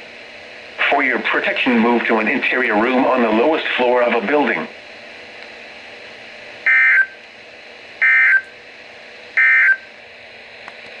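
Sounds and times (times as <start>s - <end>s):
faint radio hiss: 0.1s - 9.4s
screeching digital data bursts: 6.7s - 7.2s, 8.0s - 8.5s.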